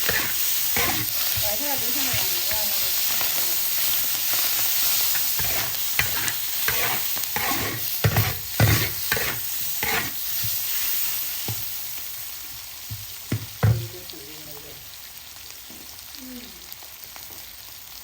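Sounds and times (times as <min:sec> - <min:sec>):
metal spatula scraping a wok: 0:00.0 - 0:02.6, 0:04.5 - 0:11.1
food sizzling in a wok: 0:00.0 - 0:18.0.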